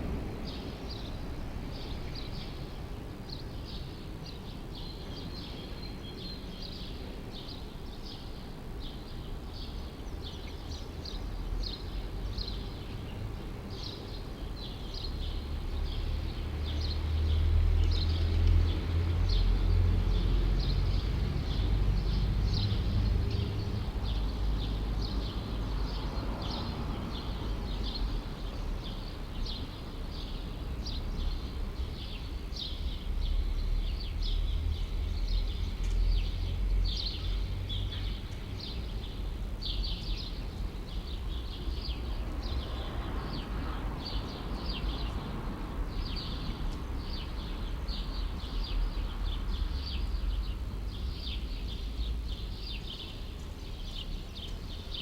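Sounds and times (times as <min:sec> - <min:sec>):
low city rumble: 0:00.0 - 0:55.0
small birds chirping: 0:00.3 - 0:55.0.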